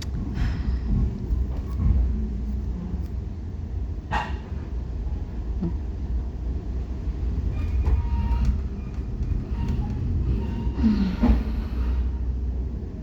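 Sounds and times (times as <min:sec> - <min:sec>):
train rumble inside coach: 0:00.0 - 0:13.0
clicks and knocks from train wheels: 0:07.2 - 0:11.9.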